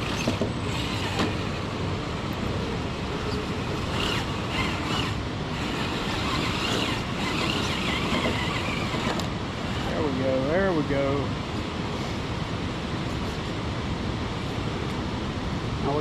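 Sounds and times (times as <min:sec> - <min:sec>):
electric motor whining: 0:00.0 - 0:10.2
steady rushing noise: 0:00.0 - 0:16.0.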